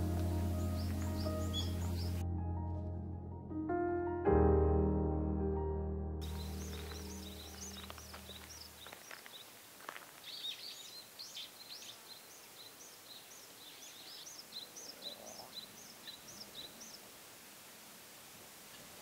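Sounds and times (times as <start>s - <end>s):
faint outdoor hiss: 0.0s - 2.2s, 6.2s - 19.0s
small birds chirping: 0.0s - 2.2s, 6.2s - 17.2s.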